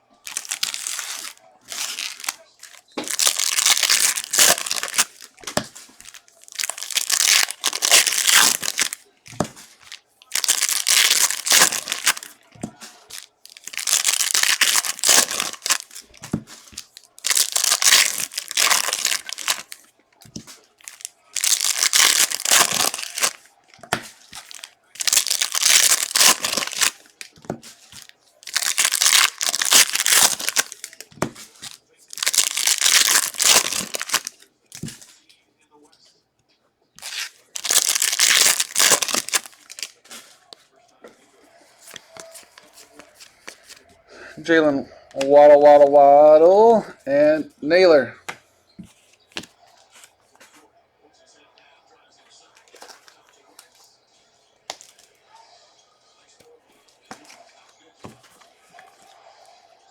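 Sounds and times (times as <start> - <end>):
card pack wrappers tearing and crinkling: 0.2 - 35.2, 37.0 - 40.6.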